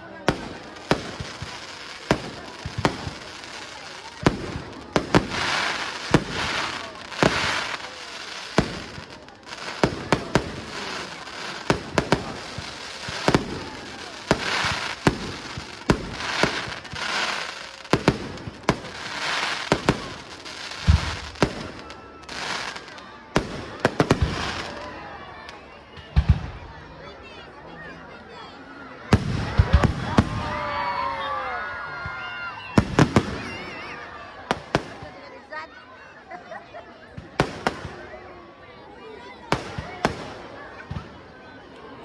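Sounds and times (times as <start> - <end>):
crackling firework bursts: 0.1 - 25.0, 32.1 - 35.2, 37.3 - 38.3, 39.4 - 41.3
firework bangs: 0.2 - 25.0, 29.1 - 30.6, 32.8 - 35.2, 37.2 - 38.2, 39.5 - 41.1.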